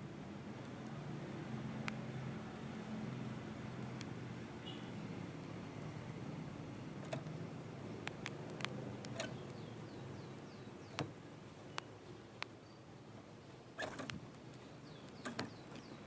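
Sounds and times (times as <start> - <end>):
songbird chirping: 1.8 - 5.9, 6.7 - 16.0
sharp clicks and taps: 8.0 - 9.6, 10.9 - 12.6.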